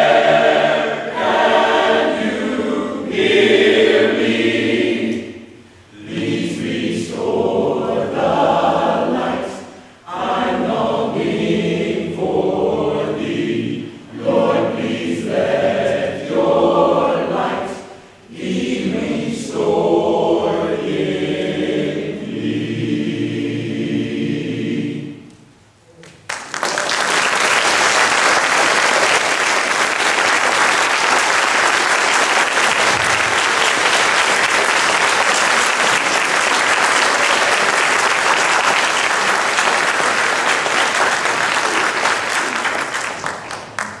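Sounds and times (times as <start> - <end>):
choir singing: 0.0 - 25.4, 28.4 - 43.1
audience applause: 26.2 - 44.0.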